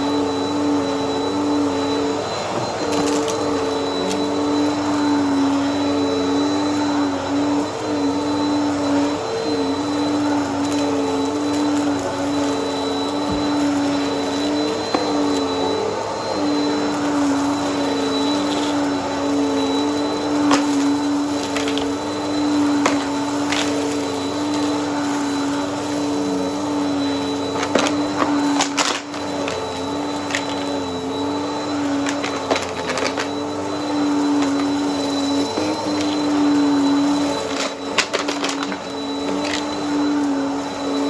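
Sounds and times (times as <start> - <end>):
vacuum cleaner motor hum: 0.0 - 41.0
debris clicking in vacuum: 37.4 - 39.8.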